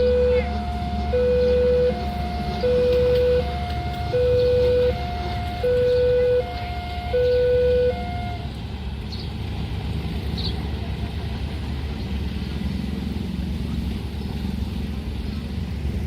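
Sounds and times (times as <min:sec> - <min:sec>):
level crossing alarm ding-dong: 0:00.0 - 0:08.4
low vehicle rumble: 0:00.0 - 0:16.0.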